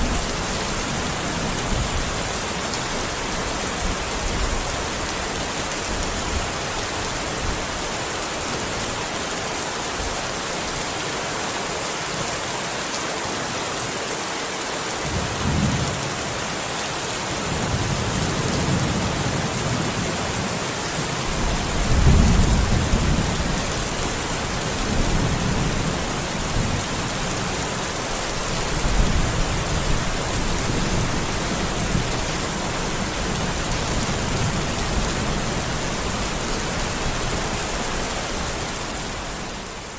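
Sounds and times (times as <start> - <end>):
rolling thunder: 21.3 - 24.0.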